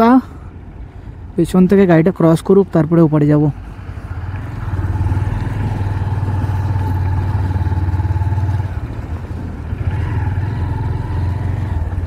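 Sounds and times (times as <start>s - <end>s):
motorcycle engine running: 4.1s - 12.0s.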